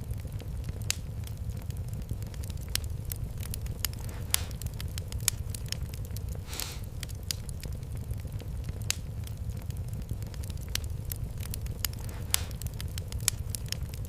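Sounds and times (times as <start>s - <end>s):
fire pops: 0.0s - 14.0s
wood fire crackling: 0.0s - 14.0s
short hiss: 6.4s - 6.9s.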